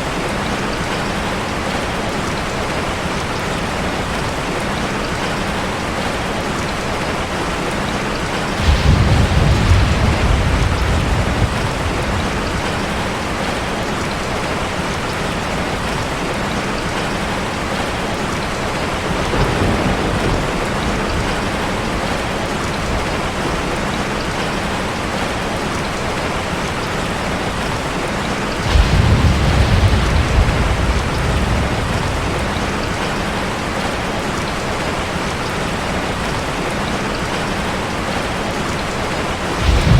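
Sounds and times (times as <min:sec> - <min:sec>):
heavy rain on a car: 0:00.0 - 0:39.9
low thunder rumbling: 0:08.4 - 0:14.2, 0:18.7 - 0:23.6, 0:28.5 - 0:35.1, 0:39.4 - 0:39.9.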